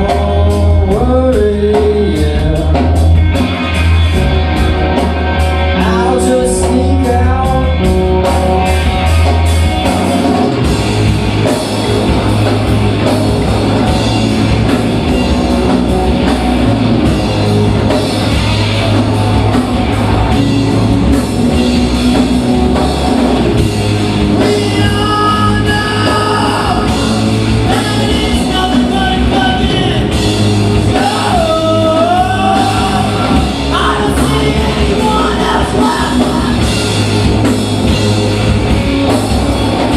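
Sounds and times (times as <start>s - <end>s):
person singing: 0.0s - 3.2s, 5.7s - 9.4s, 24.4s - 36.9s
bass guitar: 0.0s - 39.9s
distorted electric guitars: 0.0s - 39.9s
drums: 0.0s - 39.9s.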